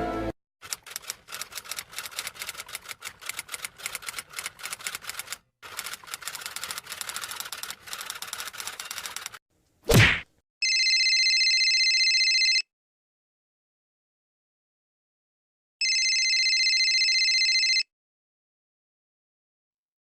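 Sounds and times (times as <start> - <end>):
rapid keyboard typing: 0.6 - 9.4.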